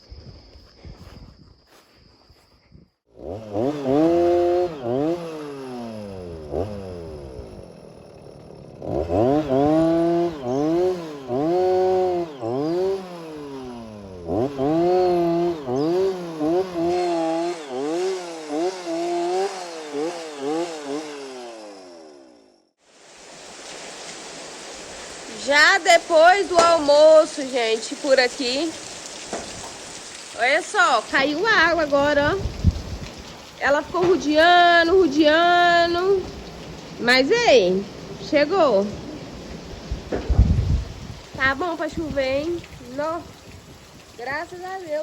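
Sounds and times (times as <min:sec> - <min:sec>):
engine-powered drill boring: 0:03.1 - 0:23.2.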